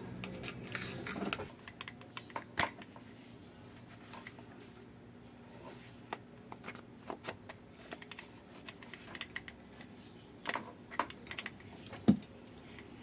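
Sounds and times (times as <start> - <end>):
small parts clicking and tapping: 1.6 - 3.0, 6.1 - 12.9.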